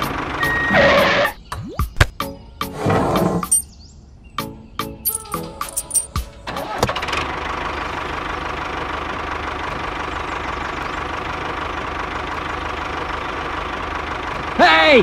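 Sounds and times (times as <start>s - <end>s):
tractor engine running: 0.0s - 1.2s, 5.1s - 15.0s.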